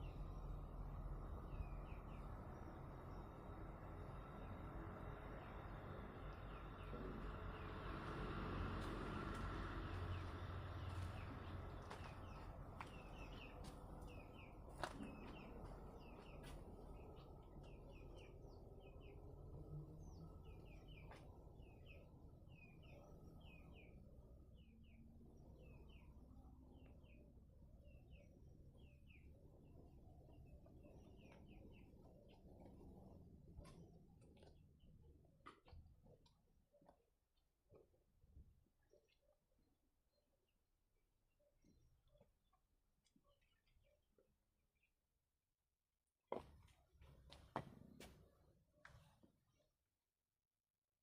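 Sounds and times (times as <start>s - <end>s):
low steady rumble: 0.0s - 36.7s.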